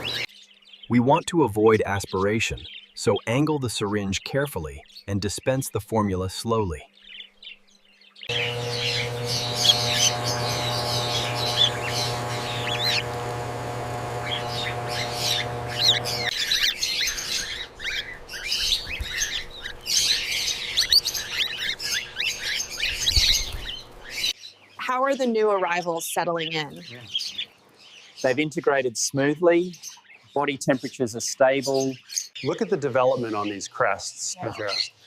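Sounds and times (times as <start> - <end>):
machine-like hum: 8.3 - 16.4
cockatiels chirping and squawking: 8.3 - 24.4.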